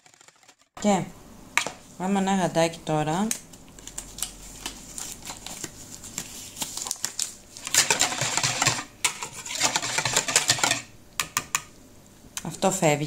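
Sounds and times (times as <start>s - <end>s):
plastic glove crinkling: 3.7s - 10.0s.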